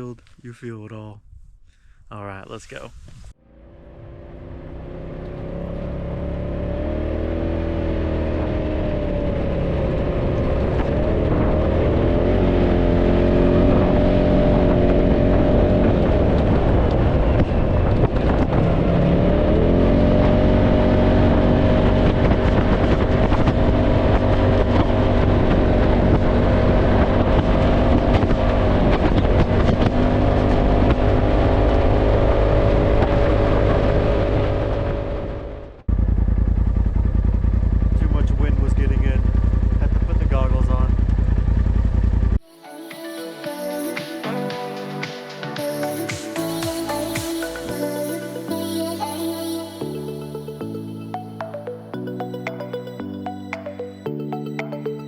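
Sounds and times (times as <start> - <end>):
off-road vehicle engine running: 3.4 - 42.4
wind buffeting microphone: 13.7 - 19.2.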